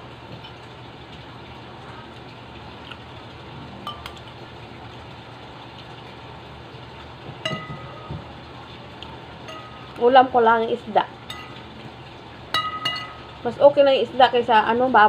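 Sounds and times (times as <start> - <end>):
steady low hum: 0.0 - 15.0
cutlery clinking on plate: 12.6 - 13.2.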